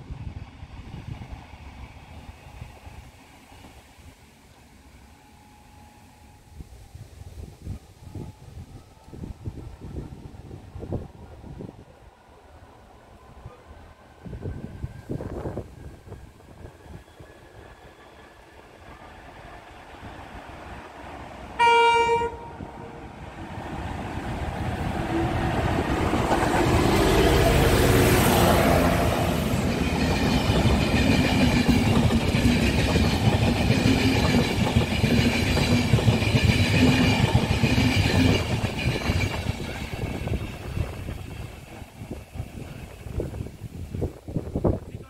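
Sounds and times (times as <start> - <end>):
train rumble: 0.0 - 45.0
train horn blast: 21.6 - 23.0.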